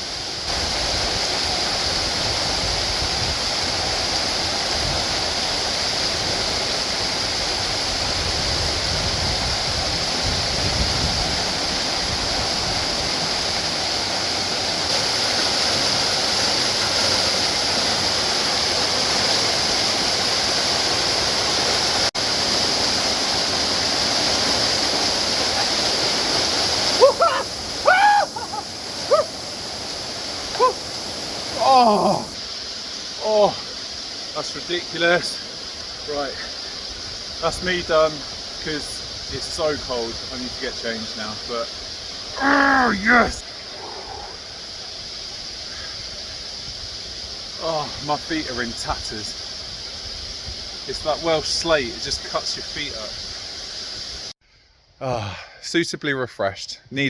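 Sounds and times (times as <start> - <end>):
waterfall rushing: 0.0 - 54.4
man crying out: 27.0 - 29.3, 31.6 - 32.4, 42.4 - 43.4.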